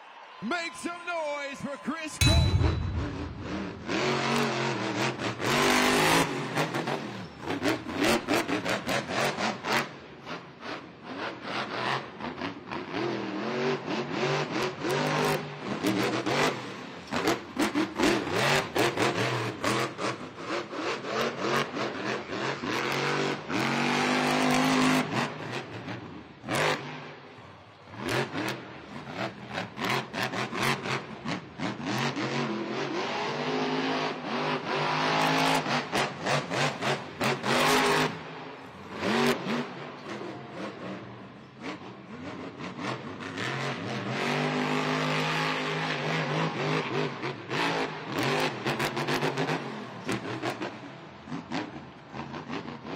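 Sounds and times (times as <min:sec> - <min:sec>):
monster truck engine revving: 0:29.8 - 0:38.1.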